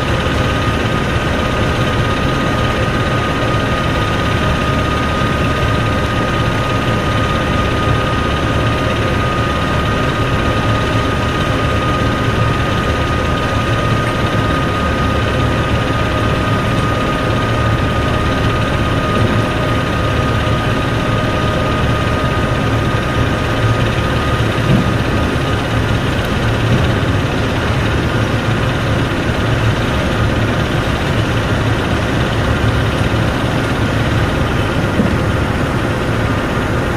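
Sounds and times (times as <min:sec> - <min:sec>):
heavy engine drone with whine: 0:00.0 - 0:36.9.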